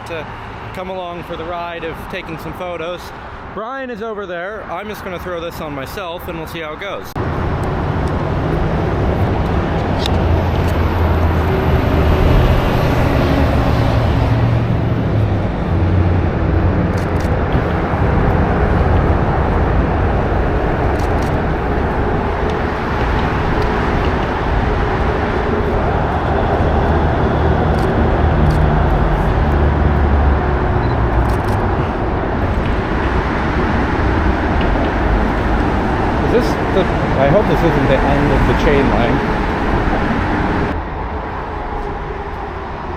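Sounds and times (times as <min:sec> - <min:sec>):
city traffic rumble: 0:00.0 - 0:42.9.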